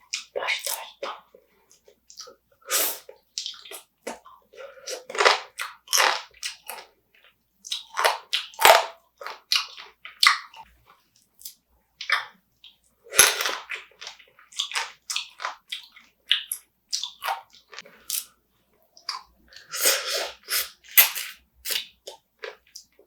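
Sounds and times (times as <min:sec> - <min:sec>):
chewing and crunching crab: 0:03.4 - 0:12.4, 0:13.1 - 0:18.4.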